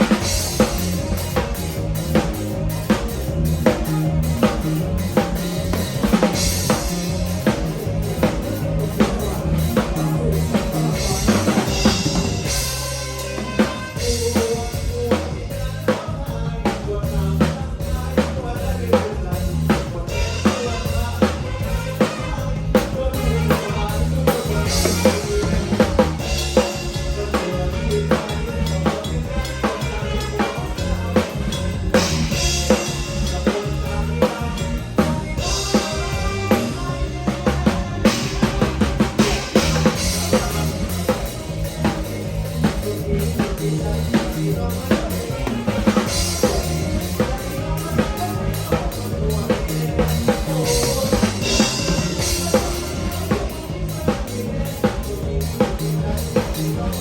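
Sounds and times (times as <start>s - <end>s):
band playing: 0.0s - 57.0s
bass line: 0.0s - 57.0s.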